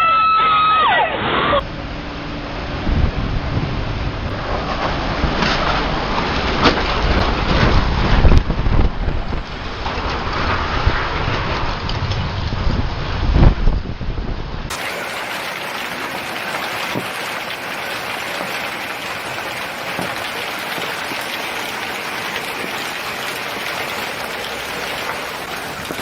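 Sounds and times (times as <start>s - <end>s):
heavy rain falling: 14.7s - 26.0s.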